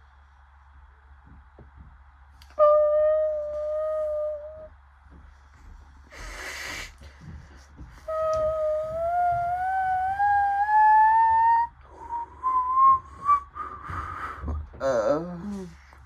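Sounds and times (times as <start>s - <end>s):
washing machine motor whining: 7.2s - 13.4s.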